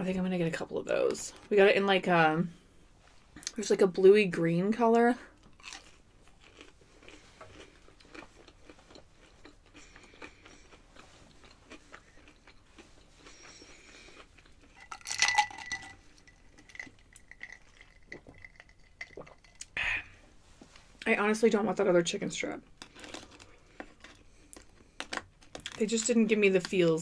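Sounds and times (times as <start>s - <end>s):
person chewing: 5.3s - 19.8s, 22.7s - 25.8s
ice clinking in glass: 14.8s - 16.0s.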